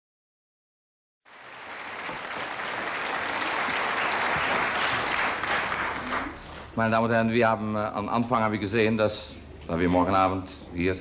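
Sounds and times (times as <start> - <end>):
audience applauding: 1.3 - 6.7.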